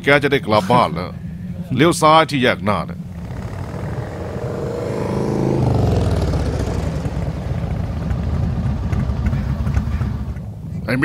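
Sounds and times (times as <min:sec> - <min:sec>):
vehicle engine accelerating: 0:02.9 - 0:10.6.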